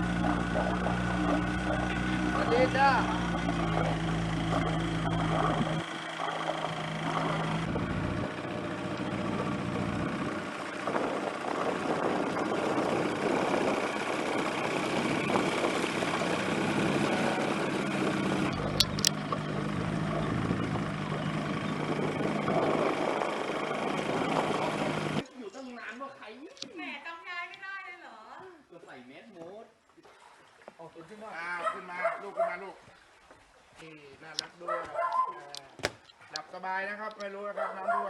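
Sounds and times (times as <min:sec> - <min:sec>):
engine running: 0:00.0 - 0:25.2
sharp clicks: 0:18.4 - 0:19.5, 0:35.2 - 0:37.3.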